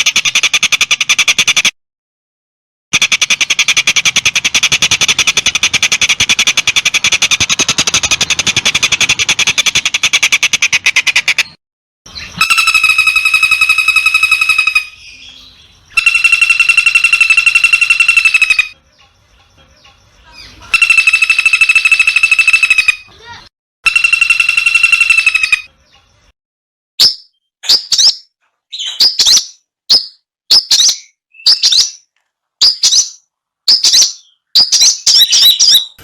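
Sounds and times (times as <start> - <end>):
songbird buzzy trill: 12.1 - 26.3
high buzzy bird notes: 12.2 - 15.2, 15.9 - 18.8, 20.7 - 25.7.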